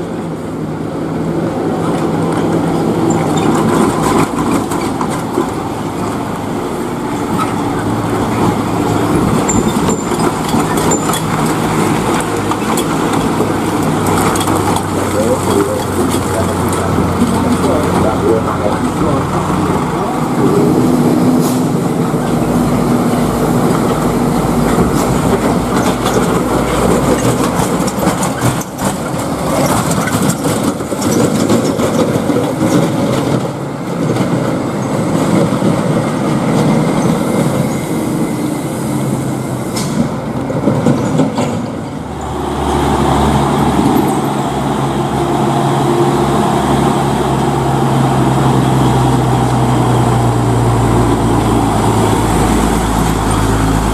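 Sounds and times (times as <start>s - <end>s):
truck diesel engines passing: 0.0s - 53.9s
nearby truck engine drone: 1.8s - 31.3s, 41.8s - 53.9s.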